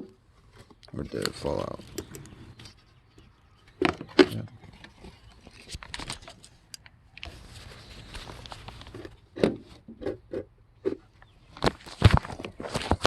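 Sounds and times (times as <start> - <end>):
steady rustling hiss: 4.8 - 10.2.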